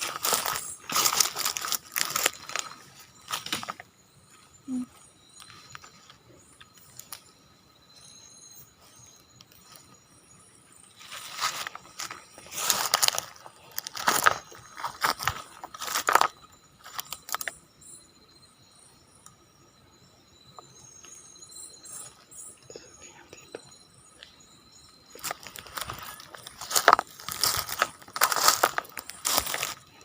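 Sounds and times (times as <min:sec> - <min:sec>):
crunching and rustling: 0:00.0 - 0:03.8, 0:11.0 - 0:17.5, 0:25.1 - 0:30.0
insects chirping: 0:00.0 - 0:30.0.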